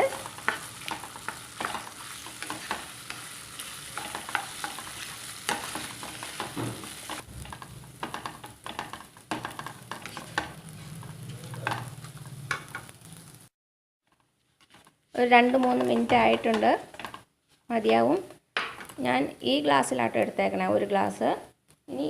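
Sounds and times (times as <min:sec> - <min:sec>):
rice sizzling in a pan: 0:00.0 - 0:13.5
scrapes and knocks against pan: 0:14.6 - 0:17.3.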